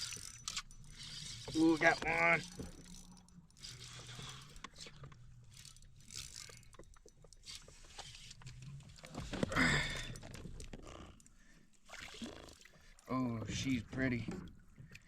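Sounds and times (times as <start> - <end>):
fishing reel whirring: 0.0 - 8.7
light water splashes: 11.7 - 15.0.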